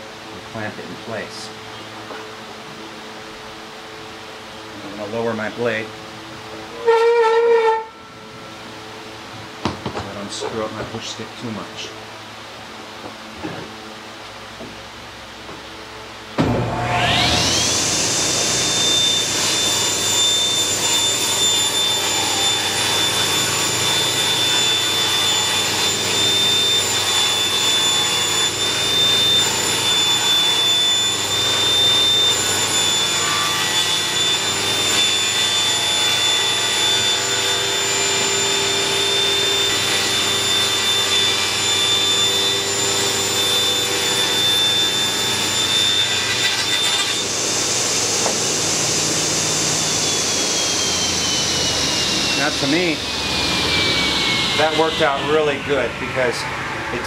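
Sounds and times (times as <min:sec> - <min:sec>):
table saw whining: 0:16.2 - 0:57.0.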